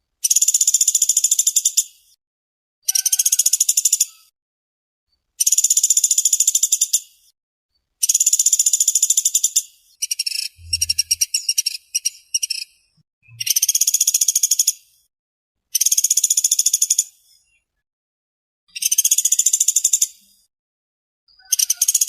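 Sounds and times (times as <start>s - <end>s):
woodpecker trilling: 2.8s - 4.3s, 8.0s - 12.7s, 21.3s - 22.0s
faint low thump: 10.6s - 11.2s.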